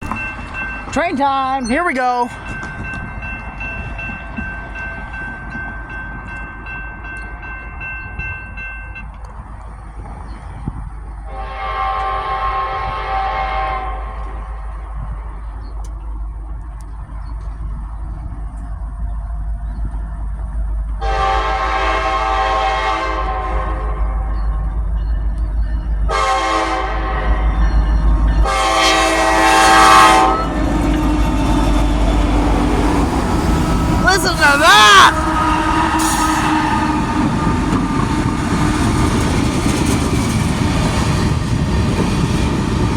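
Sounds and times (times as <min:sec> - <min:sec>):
freight train rumble: 0:00.0 - 0:42.9
locomotive air horn: 0:11.3 - 0:14.4, 0:21.0 - 0:24.1, 0:26.1 - 0:27.6, 0:28.4 - 0:30.6, 0:34.1 - 0:37.8.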